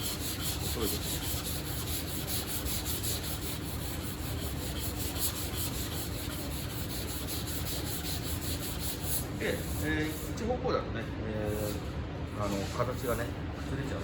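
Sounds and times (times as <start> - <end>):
sandpaper rubbing: 0.0 - 10.3
dust extraction fan hum: 0.0 - 14.0.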